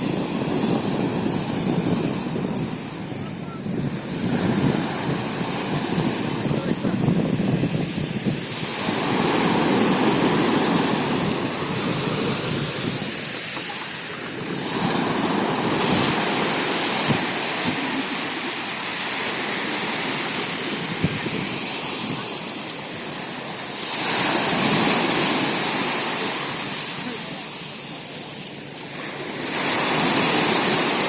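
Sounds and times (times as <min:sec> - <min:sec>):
sea waves washing onto shore: 0:00.0 - 0:31.0.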